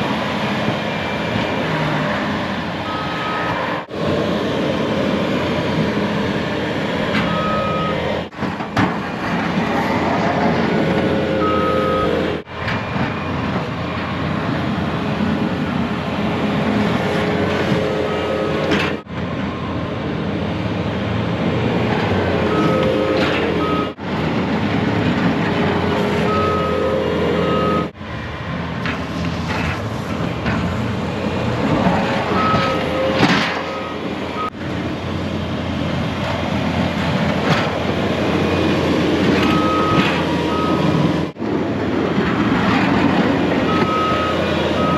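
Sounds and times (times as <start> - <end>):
skid loader engine running: 0.0 - 44.9
backup alarm beeping: 2.8 - 3.7, 7.2 - 8.2, 11.4 - 12.4, 22.5 - 24.0, 26.2 - 27.9, 32.3 - 34.6, 39.4 - 41.0, 43.7 - 44.9.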